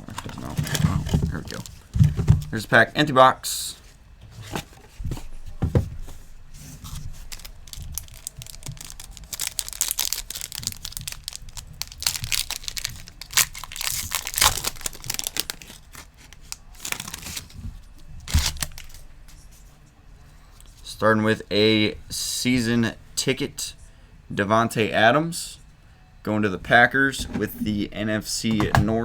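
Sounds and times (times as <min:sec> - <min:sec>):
foil wrapper tearing and crinkling: 0:00.1 - 0:02.6, 0:07.1 - 0:17.6, 0:18.2 - 0:19.0.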